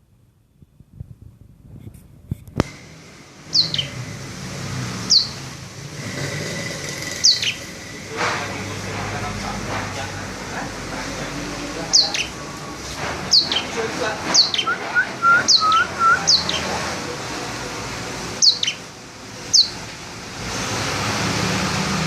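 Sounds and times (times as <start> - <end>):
songbird whistling: 3.5 - 4.0, 5.1 - 5.4, 14.4 - 16.7, 18.4 - 18.8.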